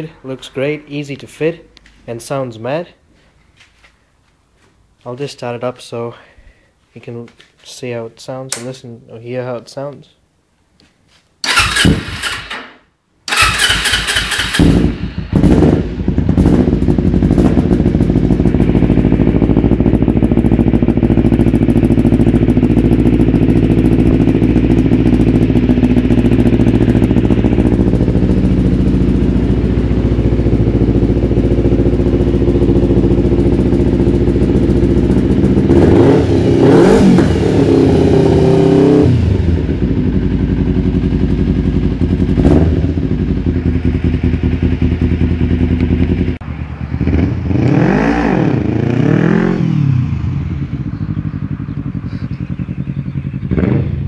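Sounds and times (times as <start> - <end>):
motorcycle engine starting and idling: 11.4 - 54.0.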